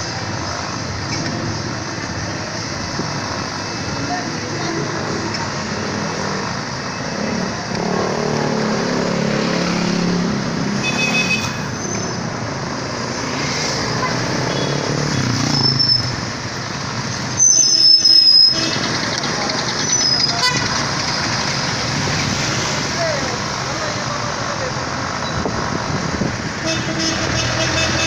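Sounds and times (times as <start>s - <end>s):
road traffic passing: 0.0s - 28.0s.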